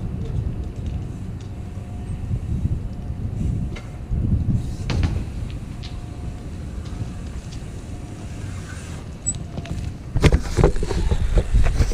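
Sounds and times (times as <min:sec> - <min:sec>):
bike clicks and knocks: 0:00.0 - 0:02.2, 0:04.8 - 0:11.9
wind rumble on microphone: 0:00.0 - 0:11.9.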